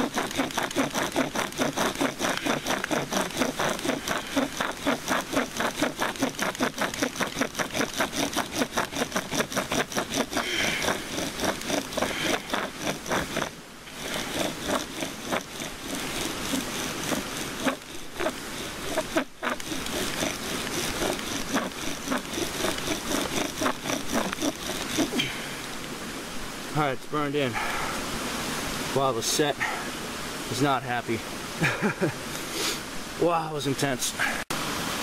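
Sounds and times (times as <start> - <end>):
bow drill rasping squeaks: 0.0 - 25.4.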